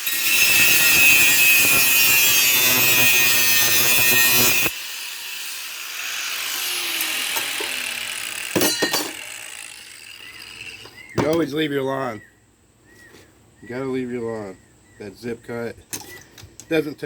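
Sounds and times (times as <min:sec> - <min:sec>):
cut-off wheel grinding steel: 0:00.0 - 0:11.2.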